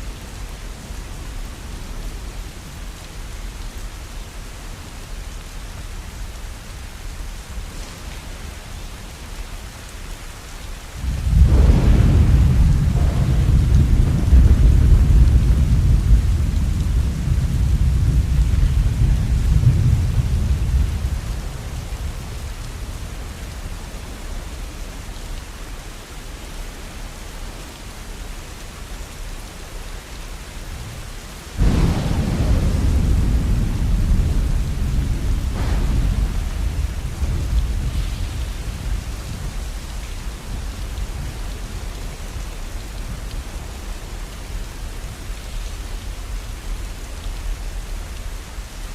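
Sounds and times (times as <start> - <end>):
steady rain falling: 0.0 - 48.9
thunder rumbling: 11.0 - 25.0, 31.6 - 47.0.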